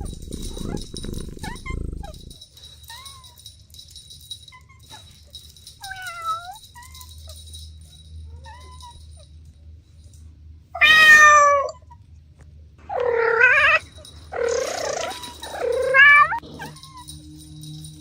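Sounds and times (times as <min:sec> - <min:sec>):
cat meowing: 0:00.0 - 0:02.3, 0:10.8 - 0:11.8.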